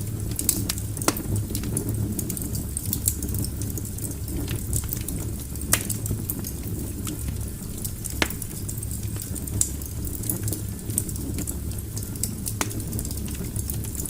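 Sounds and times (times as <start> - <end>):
rumble of fireplace flames: 0.0 - 14.0
small crackles of fire: 0.0 - 14.0
sharp pops of burning wood: 0.3 - 1.7, 4.4 - 7.2, 7.8 - 8.7, 12.2 - 13.2.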